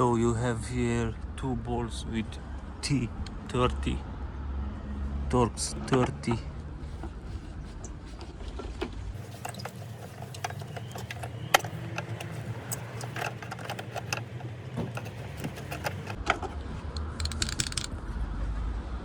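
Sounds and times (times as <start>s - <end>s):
hand tool metallic clicks: 17.0s - 17.9s.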